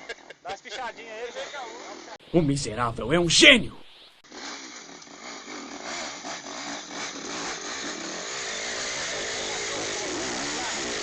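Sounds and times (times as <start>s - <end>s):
dirt bike engine revving: 4.2s - 11.0s.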